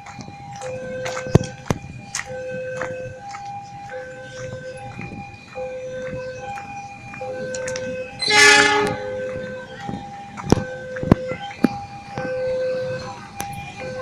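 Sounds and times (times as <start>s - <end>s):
two-tone electronic warning signal: 0.0s - 14.0s
train horn blast: 8.2s - 9.2s.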